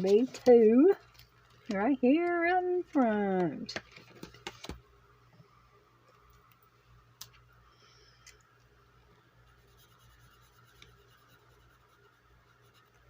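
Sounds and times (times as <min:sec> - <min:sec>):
marker scratching on paper: 0:09.6 - 0:13.0.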